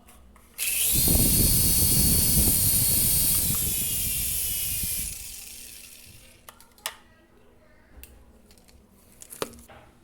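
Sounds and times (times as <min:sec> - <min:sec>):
toy helicopter motors whining: 0:00.6 - 0:06.4.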